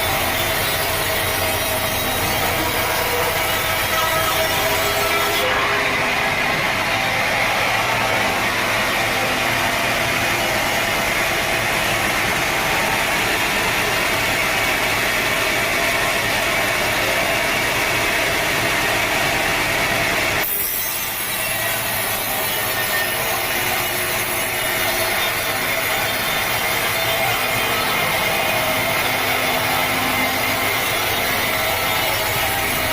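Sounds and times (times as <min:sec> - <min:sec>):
sawmill saw cutting log: 0:00.0 - 0:32.9.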